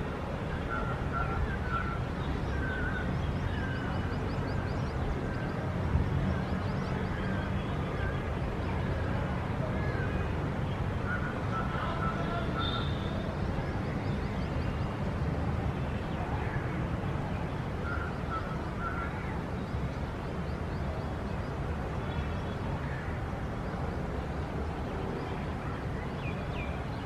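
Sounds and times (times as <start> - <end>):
city traffic rumble: 0.0 - 27.0
faint bird calls: 11.0 - 14.1, 17.8 - 19.5.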